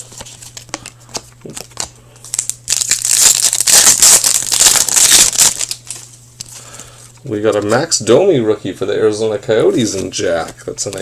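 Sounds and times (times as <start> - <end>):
foil wrapper crinkling and tearing: 1.4 - 6.1.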